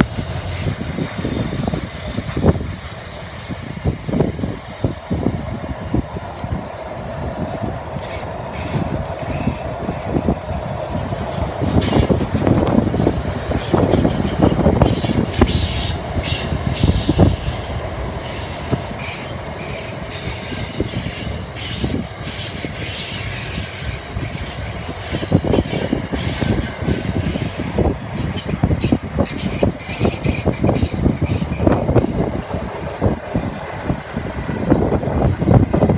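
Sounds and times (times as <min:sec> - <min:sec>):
train wheels squealing: 0:00.4 - 0:05.2, 0:08.0 - 0:10.2, 0:13.0 - 0:32.9.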